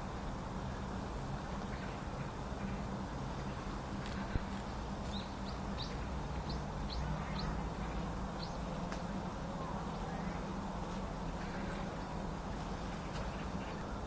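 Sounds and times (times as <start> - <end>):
songbird chirping: 1.6 - 14.0.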